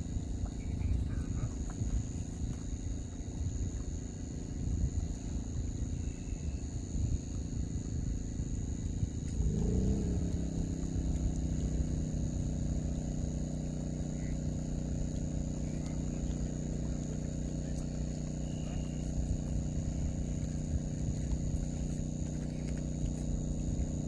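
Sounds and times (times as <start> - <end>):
insect chirring: 0.0 - 24.0
low rumbling noise: 0.0 - 24.0
engine starting and running: 8.1 - 24.0.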